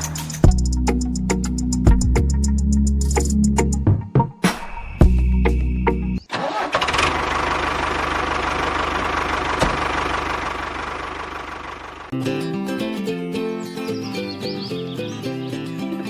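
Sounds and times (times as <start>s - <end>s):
music: 0.0s - 6.2s, 12.1s - 16.0s
engine starting and running: 6.2s - 12.2s.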